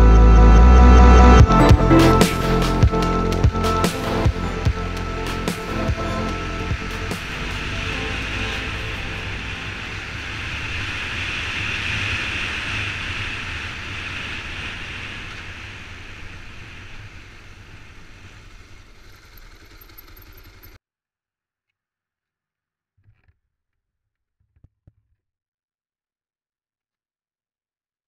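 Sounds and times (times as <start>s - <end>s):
motorcycle engine rumble: 15.2s - 20.8s.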